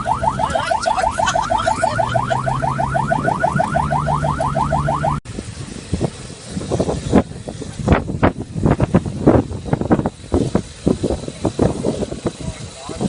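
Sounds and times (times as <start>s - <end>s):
fast electronic chirping: 0.0s - 5.2s
wind: 0.0s - 13.0s.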